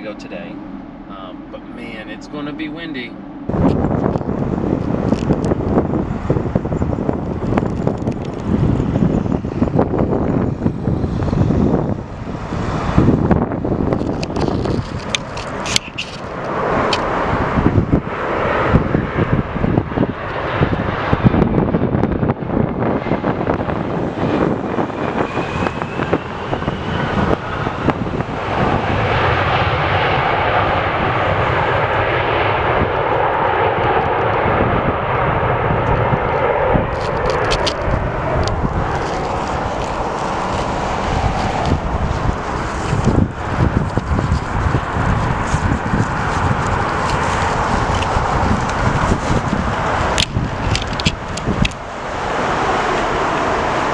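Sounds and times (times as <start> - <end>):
airliner engine roar: 0.0 - 53.9
wind buffeting microphone: 0.0 - 53.9.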